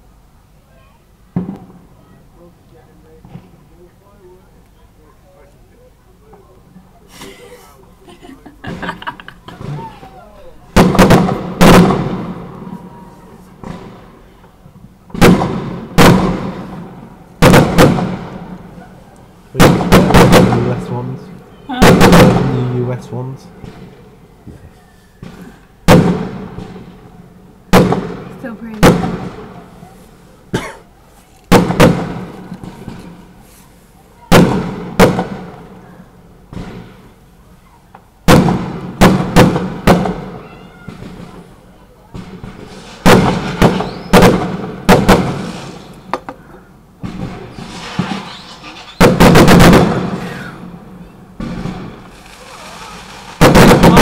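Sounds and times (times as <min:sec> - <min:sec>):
fireworks bangs with rolling echo: 0:01.3 - 0:02.0, 0:02.7 - 0:03.9, 0:08.6 - 0:24.4, 0:25.2 - 0:30.7, 0:31.5 - 0:33.5, 0:34.1 - 0:54.0.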